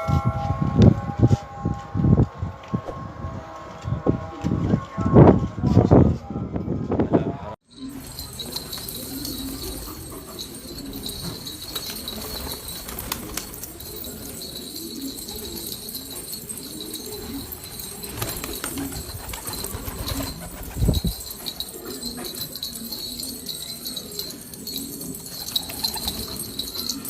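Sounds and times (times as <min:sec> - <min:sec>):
pigeons cooing: 0:07.8 - 0:27.0
wing flaps: 0:07.9 - 0:27.0.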